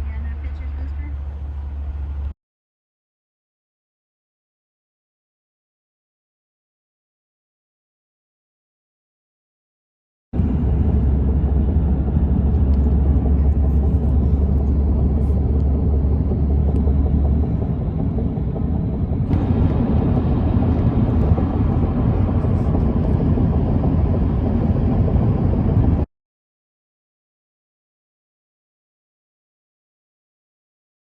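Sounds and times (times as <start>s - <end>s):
train rumbling past: 0.0s - 2.3s, 10.4s - 26.1s
deep hum: 10.4s - 26.1s.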